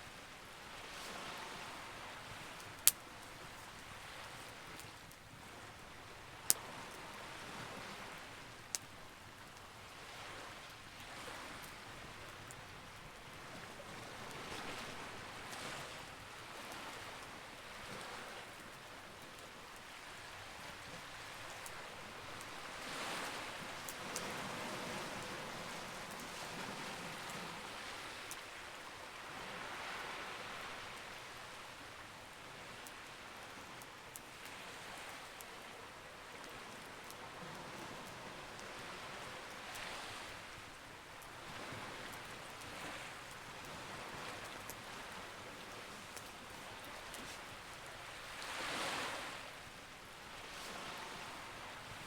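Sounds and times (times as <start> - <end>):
campfire crackling and popping: 2.2 - 7.0, 7.9 - 9.9, 20.8 - 26.4
sea waves rushing: 42.7 - 49.5.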